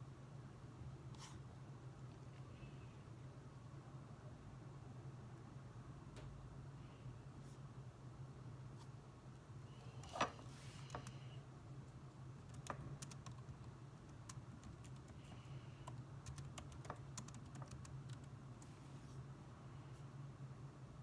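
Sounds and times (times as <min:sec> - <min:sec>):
steady low hum: 0:00.0 - 0:21.0
typing on computer keyboard: 0:12.4 - 0:18.7.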